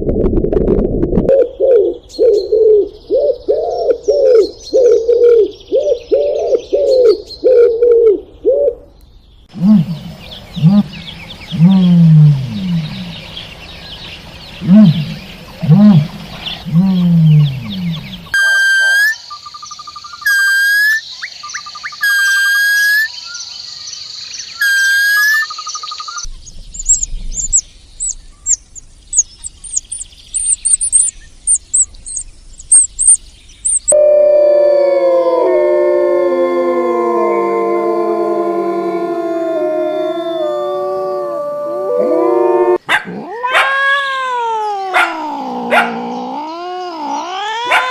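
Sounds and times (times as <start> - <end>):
deep arching animal calls: 9.5 - 19.2, 33.9 - 47.9
two-part animal call: 9.6 - 13.5, 14.6 - 19.2, 33.9 - 47.9
rapid high chirps: 24.7 - 34.0
overlapping howls: 33.9 - 47.9.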